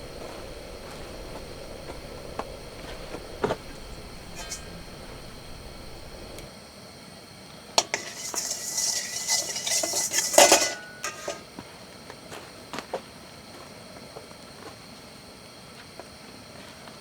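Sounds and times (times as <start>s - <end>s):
metal utensils clinking on cookware: 0.0s - 6.5s, 7.8s - 11.5s.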